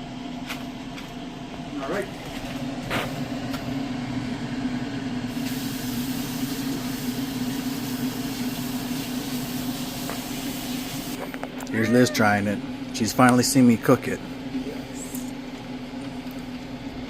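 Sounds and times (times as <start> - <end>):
mechanical hum: 0.0 - 17.0
hiss: 5.3 - 11.2.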